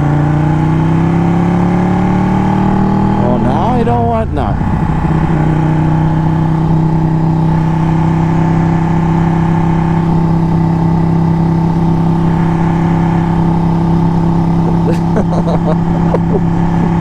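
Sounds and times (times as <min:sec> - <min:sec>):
motorcycle engine running: 0:00.0 - 0:17.0
wind noise: 0:03.1 - 0:07.9.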